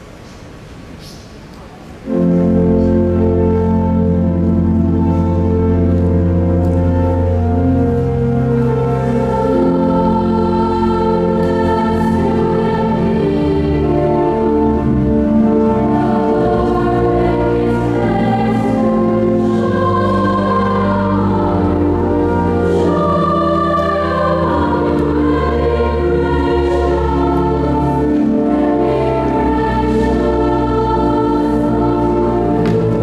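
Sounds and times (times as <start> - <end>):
choir singing sustained chords: 2.0 - 33.0
long low held notes: 2.0 - 33.0.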